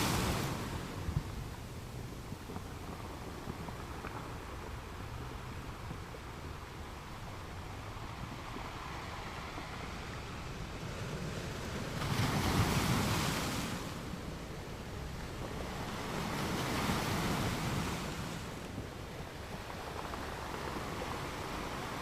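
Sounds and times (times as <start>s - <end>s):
waves breaking: 0.0s - 1.8s, 7.8s - 22.0s
rush of ocean surf: 0.0s - 22.0s.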